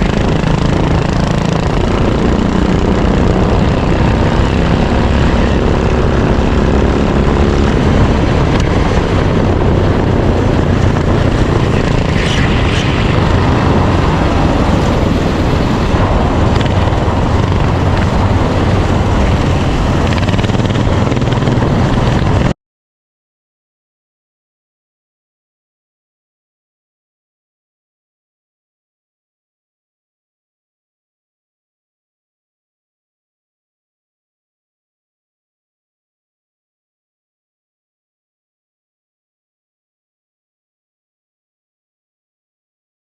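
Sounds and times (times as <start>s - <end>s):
kart engine running: 0.0s - 22.6s
wind rush over microphone: 0.0s - 22.6s.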